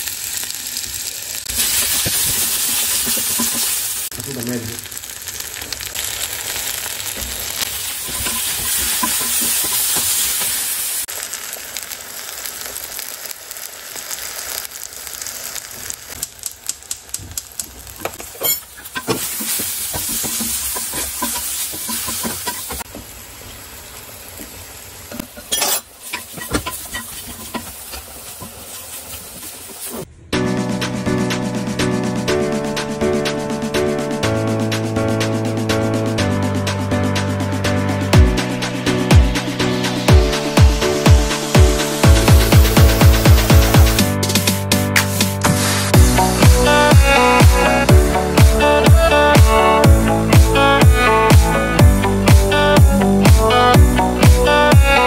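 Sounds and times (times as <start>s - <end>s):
vegetables sizzling in hot oil: 0.0s - 30.1s, 40.4s - 51.2s
wooden spatula scraping pan: 18.1s - 22.8s, 25.2s - 30.0s.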